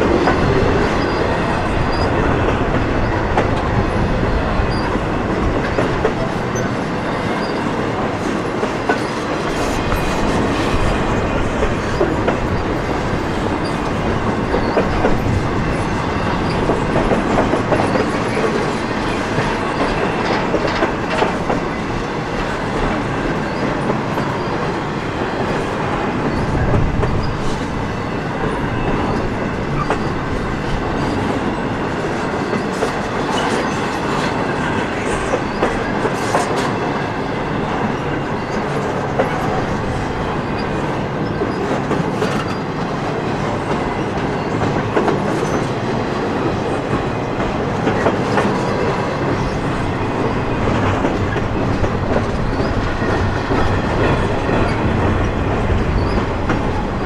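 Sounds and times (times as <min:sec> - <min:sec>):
freight train rumbling past: 0:00.0 - 0:57.0
wheels clattering over rail joints: 0:25.5 - 0:57.0.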